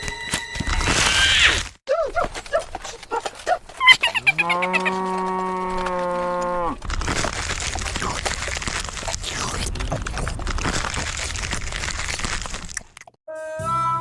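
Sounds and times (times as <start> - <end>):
cow mooing: 4.2 - 6.8.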